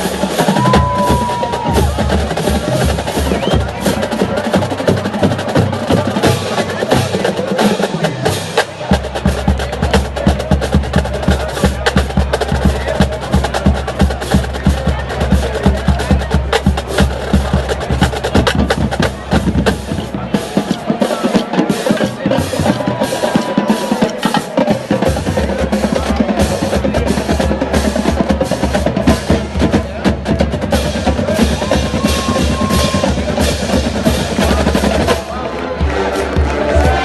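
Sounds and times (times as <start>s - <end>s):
deep bass drums: 0.0s - 7.4s, 24.7s - 37.0s
drumline playing: 0.0s - 37.0s
marching band music: 0.0s - 37.0s.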